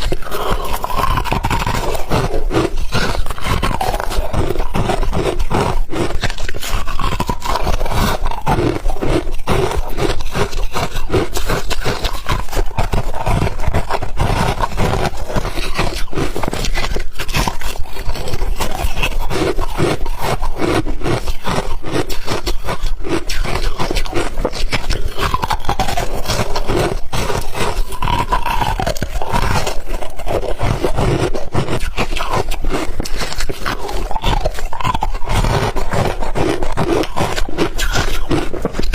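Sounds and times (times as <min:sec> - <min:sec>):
chewing ice crunches: 0:00.0 - 0:38.9.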